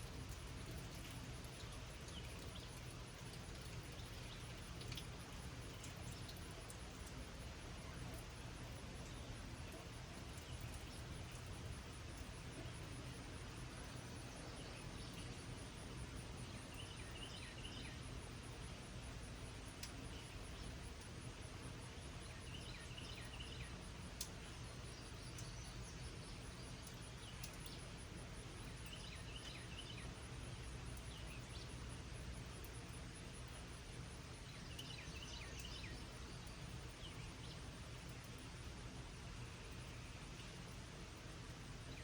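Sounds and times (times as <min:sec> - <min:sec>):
light rain falling: 0:00.0 - 0:42.0
songbird chirping: 0:12.1 - 0:18.6, 0:22.2 - 0:23.8, 0:28.6 - 0:30.3, 0:34.4 - 0:38.4.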